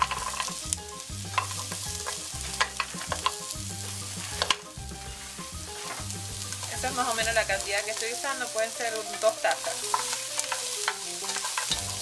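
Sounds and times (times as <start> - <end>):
vegetables sizzling in hot oil: 0.0 - 12.0
wooden spoon clicks and knocks: 1.3 - 3.4.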